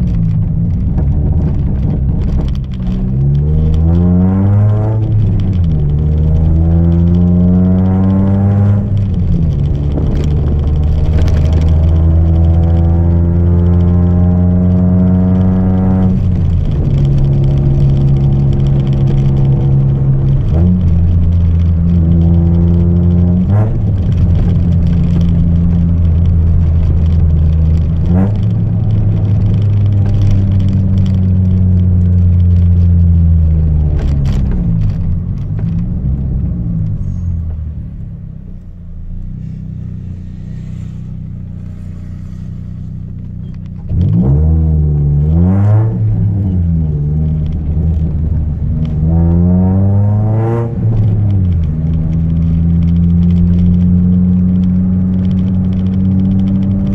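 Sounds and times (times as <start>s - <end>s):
loud car engine exhaust: 36.2s - 56.9s.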